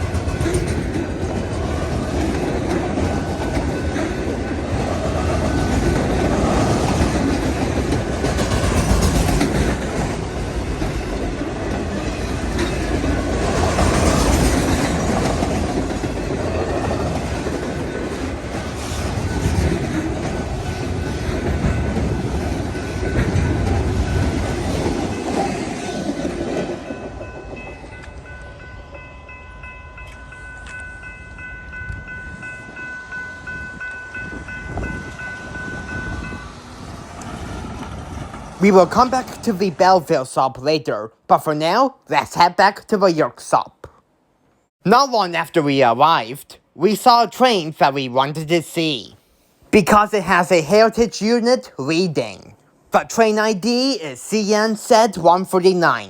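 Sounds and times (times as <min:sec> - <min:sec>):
wheel clickety-clack on rail joints: 0:00.0 - 0:28.5
freight train rumbling past: 0:00.0 - 0:41.8
high ringing tones: 0:26.8 - 0:36.7.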